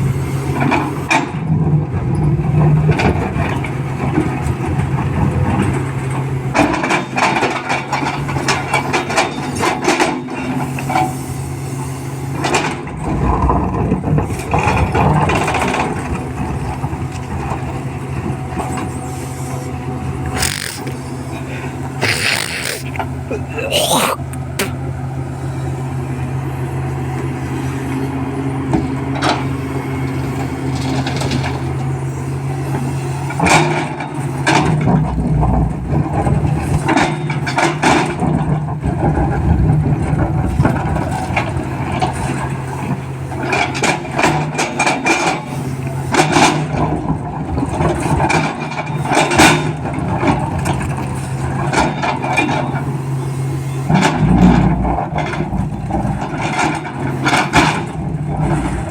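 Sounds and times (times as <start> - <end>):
diesel engine running: 3.4 - 23.6.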